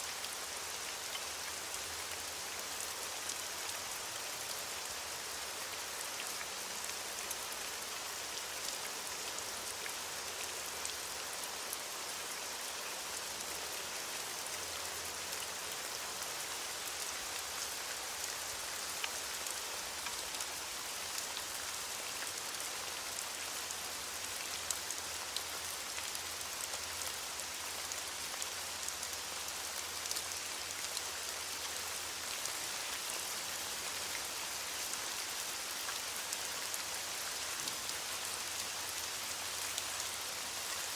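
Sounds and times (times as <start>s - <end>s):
heavy rain falling: 32.2s - 40.9s.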